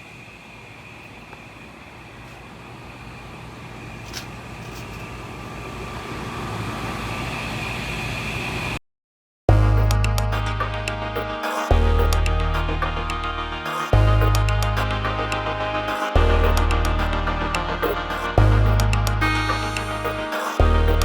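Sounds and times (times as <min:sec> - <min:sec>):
air conditioner units whirring: 0:00.0 - 0:08.8.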